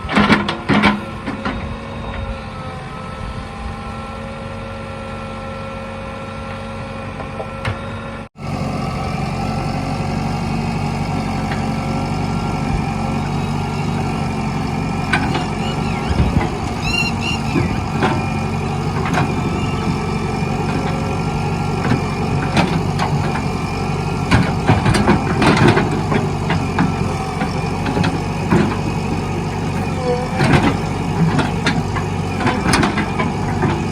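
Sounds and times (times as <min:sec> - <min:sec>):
heavy diesel engine running: 0:00.0 - 0:33.9
sharp knocks and clanks: 0:24.3 - 0:28.9.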